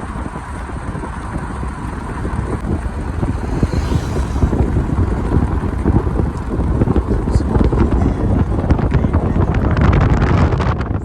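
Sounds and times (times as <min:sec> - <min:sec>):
low road and engine rumble: 0:00.0 - 0:11.0
wind buffeting microphone: 0:00.0 - 0:11.0.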